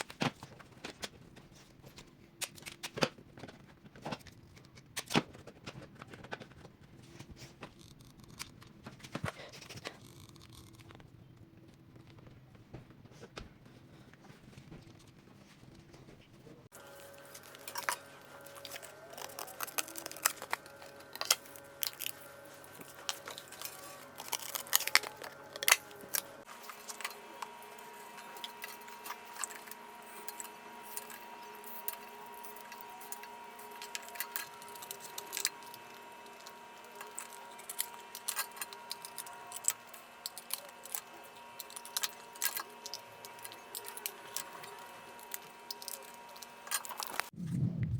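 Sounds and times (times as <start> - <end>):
paper crinkling: 16.8 - 47.4.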